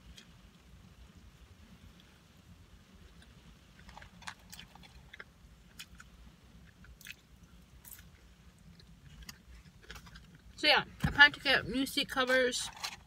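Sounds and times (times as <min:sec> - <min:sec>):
low steady rumble: 0:00.0 - 0:13.0
person chewing: 0:03.0 - 0:10.5.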